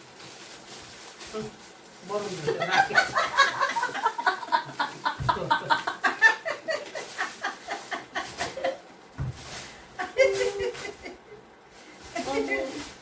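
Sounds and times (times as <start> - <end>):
people laughing: 2.5 - 8.8.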